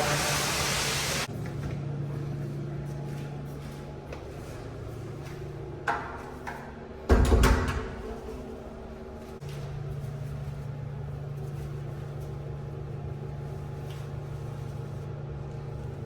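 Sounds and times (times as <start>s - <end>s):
toilet flush rushing: 0.0s - 1.3s
steady low hum: 7.8s - 16.0s.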